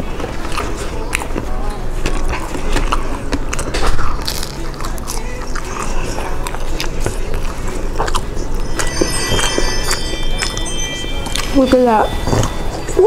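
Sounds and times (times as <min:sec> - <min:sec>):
chewing crunchy food: 0:00.0 - 0:09.7.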